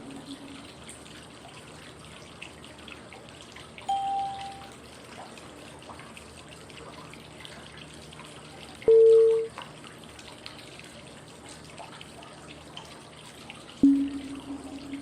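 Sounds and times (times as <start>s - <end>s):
flowing water: 0.0s - 15.0s
short cue tone: 3.9s - 4.6s, 8.9s - 9.5s, 13.8s - 15.0s.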